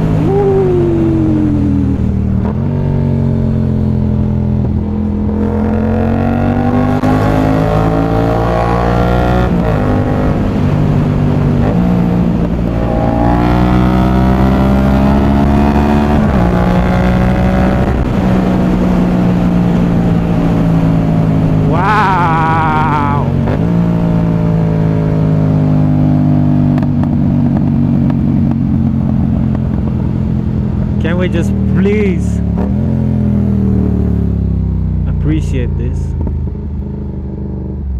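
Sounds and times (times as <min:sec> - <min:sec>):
motorcycle engine accelerating: 0:00.0 - 0:35.3, 0:36.1 - 0:37.9
wavering high tone: 0:00.2 - 0:02.4.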